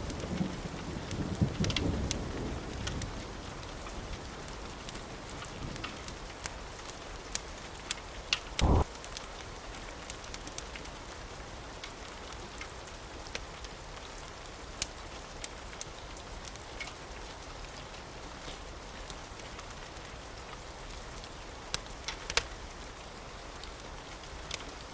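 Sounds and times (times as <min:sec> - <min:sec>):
sharp crackles and ticks: 0:00.0 - 0:24.9
steady rain: 0:00.0 - 0:24.9
heavy low thud: 0:08.6 - 0:08.8.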